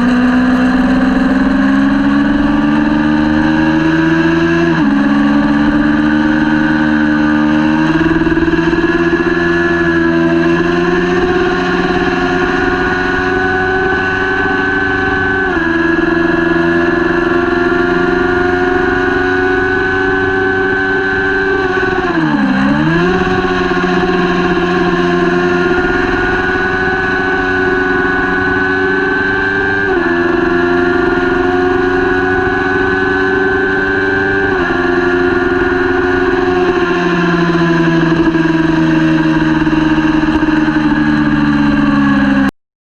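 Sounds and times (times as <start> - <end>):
motorcycle engine at high revs: 0.0 - 42.5.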